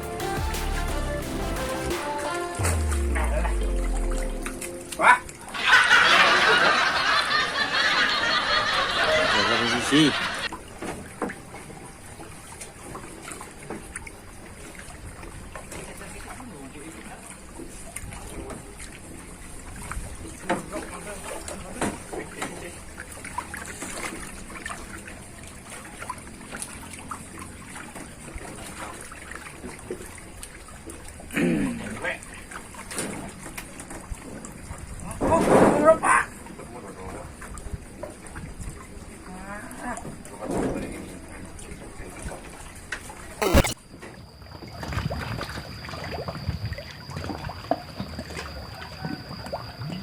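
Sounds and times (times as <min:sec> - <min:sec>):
loud wavering sound: 0:00.0 - 0:05.6
water trickling and lapping: 0:10.0 - 0:35.2, 0:44.6 - 0:50.0.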